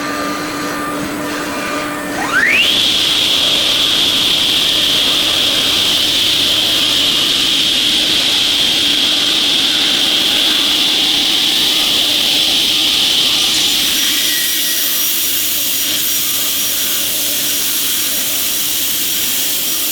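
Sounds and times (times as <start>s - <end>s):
loud machine hum: 0.0s - 13.9s
spindle whine rising: 1.8s - 8.3s.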